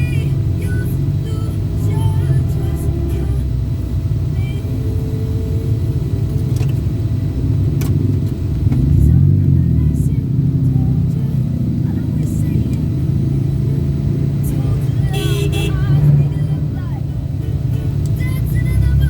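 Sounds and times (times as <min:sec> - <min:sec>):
vehicle rumble from on board: 0:00.0 - 0:19.0.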